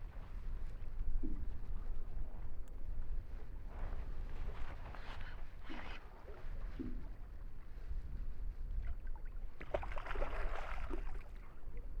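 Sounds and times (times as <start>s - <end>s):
wind rumbling on microphone: 0.0s - 9.8s
water lapping against boat: 4.7s - 8.0s, 8.7s - 12.0s.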